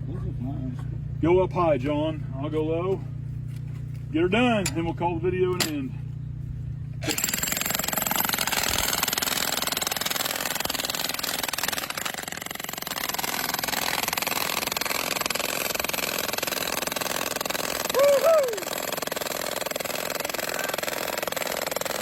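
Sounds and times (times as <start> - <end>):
jackhammer hammering rock: 7.0 - 22.0.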